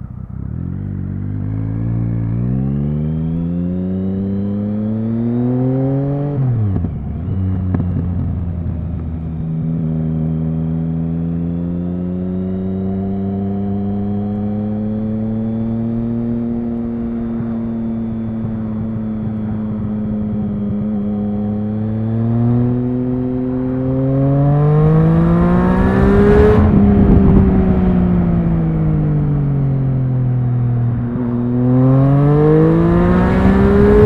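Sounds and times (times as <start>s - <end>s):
motorcycle engine accelerating: 0.0s - 34.0s
exhaust crackle: 16.4s - 23.8s.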